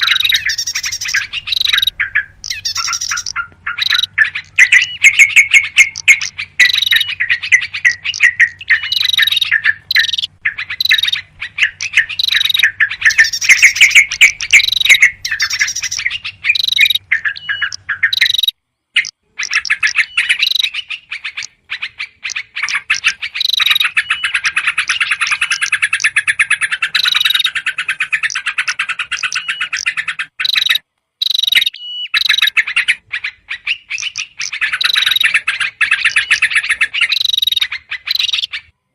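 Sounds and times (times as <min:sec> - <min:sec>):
bulbuls chattering calls: 0:00.0 - 0:38.7
small birds calling: 0:00.0 - 0:38.9.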